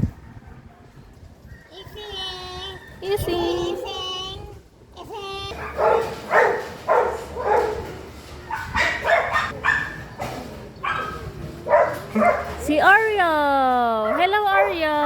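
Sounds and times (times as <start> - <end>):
dog barking: 5.5 - 10.0, 10.8 - 12.6.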